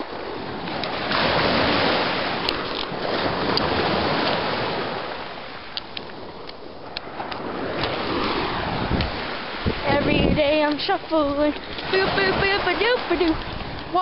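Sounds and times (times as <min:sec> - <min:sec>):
ocean wave breaking on shore: 0:00.0 - 0:14.0.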